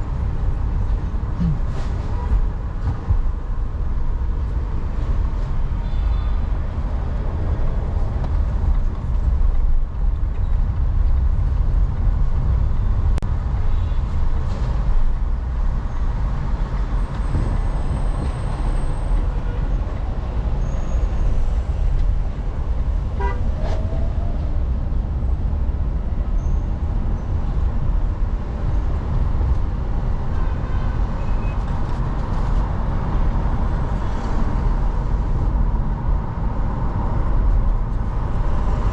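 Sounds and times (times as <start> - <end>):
car road noise rumble: 0.0 - 38.9.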